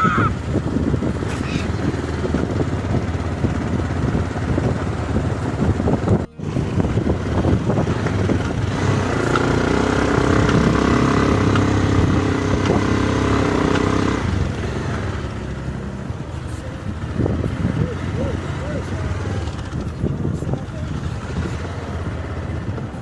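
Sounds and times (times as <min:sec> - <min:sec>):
motorcycle engine running: 0:00.0 - 0:23.0
road and wind noise: 0:00.0 - 0:23.0.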